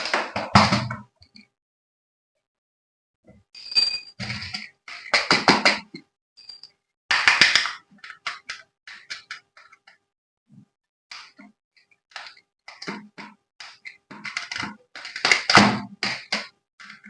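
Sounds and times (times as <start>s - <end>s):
plastic toy parts clicking and rattling: 7.2s - 10.0s, 12.1s - 17.0s.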